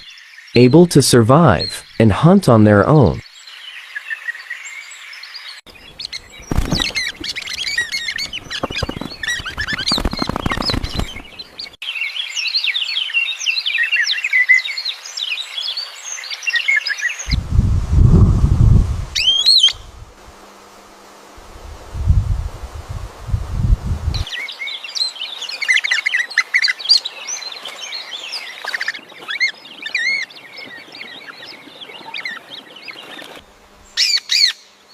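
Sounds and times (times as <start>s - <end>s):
small birds chirping: 2.9s - 17.4s, 24.2s - 34.9s.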